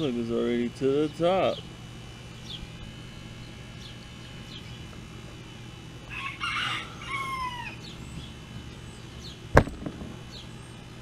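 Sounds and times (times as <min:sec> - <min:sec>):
rooster crowing: 0:06.0 - 0:08.1.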